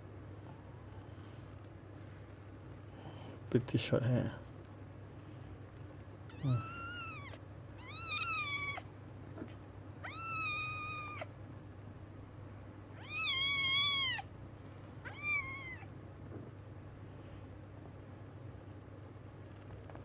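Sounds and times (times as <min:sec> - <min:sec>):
kittens mewing: 0:06.3 - 0:11.4, 0:12.9 - 0:14.3, 0:15.0 - 0:15.9.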